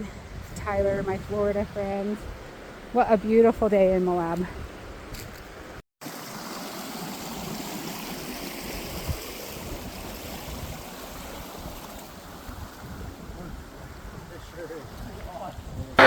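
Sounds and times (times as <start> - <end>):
creek water flowing: 6.0 - 15.0.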